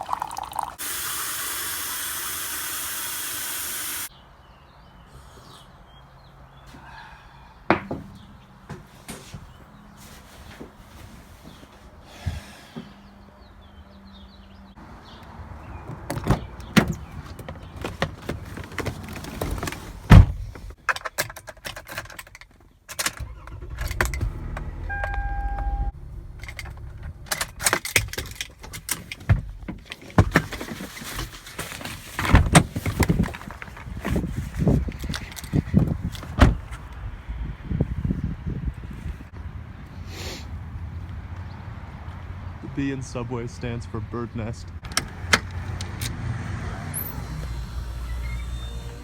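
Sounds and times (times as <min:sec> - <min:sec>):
handling knocks and rattles: 0:07.7 - 0:11.8, 0:15.8 - 0:24.6, 0:26.3 - 0:36.9
short electronic beep: 0:24.9 - 0:25.9.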